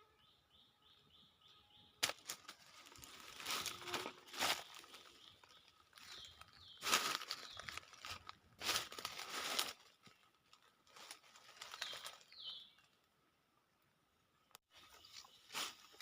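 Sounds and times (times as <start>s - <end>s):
dry rustling: 2.0s - 12.8s.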